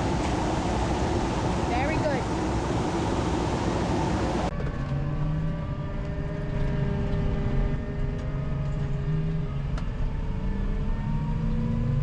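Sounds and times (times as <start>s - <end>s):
loud rushing noise: 0.0s - 4.5s
tractor engine humming: 0.0s - 4.6s.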